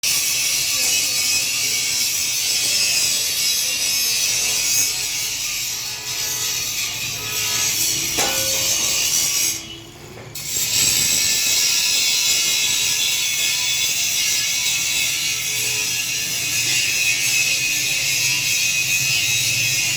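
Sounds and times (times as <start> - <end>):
arc welding crackling hiss: 10.4 - 19.9.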